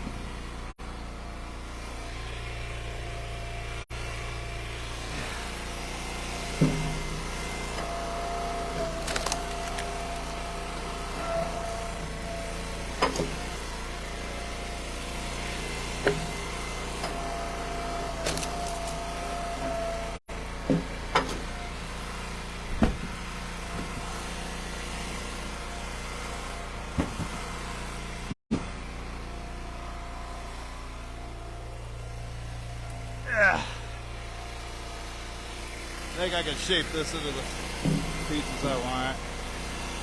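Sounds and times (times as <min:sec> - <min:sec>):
wood splitter engine running: 0:00.0 - 0:40.0
wood cracking and knocking: 0:08.8 - 0:10.3, 0:18.2 - 0:19.0.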